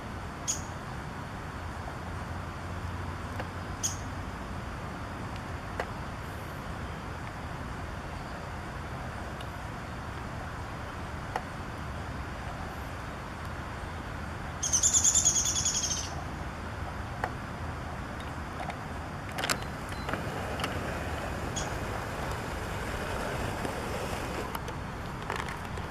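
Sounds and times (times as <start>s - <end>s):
small bird trilling: 14.6s - 16.2s
low outdoor rumble: 16.0s - 25.9s.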